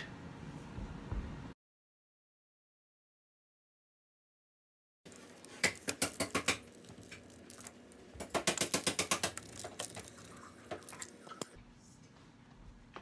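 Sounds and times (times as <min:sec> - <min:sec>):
pizza cutter crunching through crust: 0:05.1 - 0:11.6.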